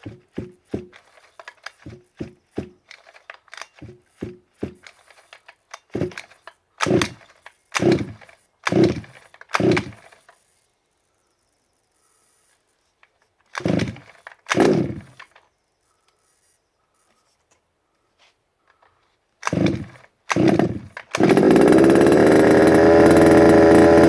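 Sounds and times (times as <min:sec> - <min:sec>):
small engine turning over: 0:00.0 - 0:10.7, 0:13.5 - 0:15.4, 0:19.4 - 0:24.0.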